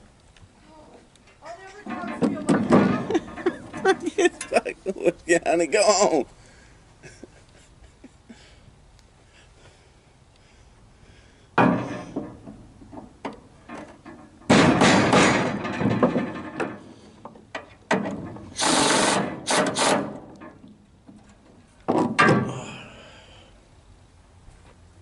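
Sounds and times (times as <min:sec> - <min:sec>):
hard objects knocking and clattering: 0:01.9 - 0:04.5, 0:11.6 - 0:18.4.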